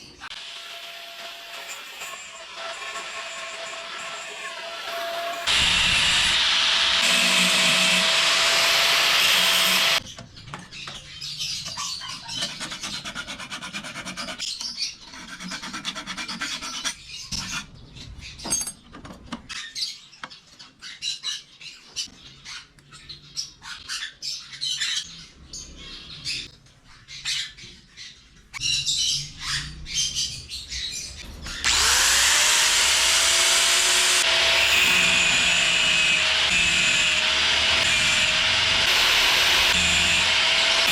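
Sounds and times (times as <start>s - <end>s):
electric power tool motor running: 5.4s - 10.0s, 31.6s - 40.9s.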